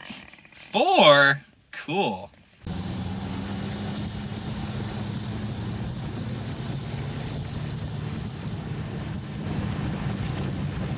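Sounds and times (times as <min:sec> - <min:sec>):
snowmobile engine running: 0:02.7 - 0:10.9.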